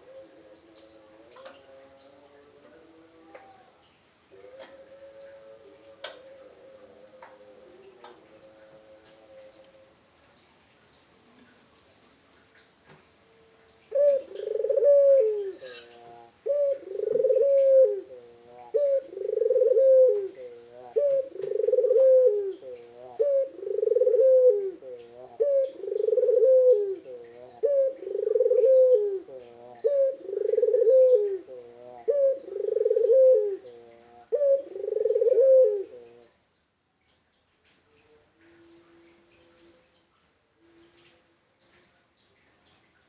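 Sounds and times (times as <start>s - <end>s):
dove cooing: 0.0s - 3.4s, 4.3s - 9.8s, 13.9s - 36.3s.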